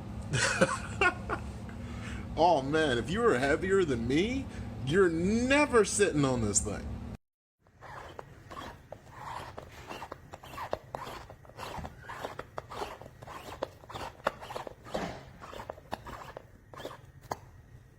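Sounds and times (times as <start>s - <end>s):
scraping and rustling: 7.7s - 17.4s.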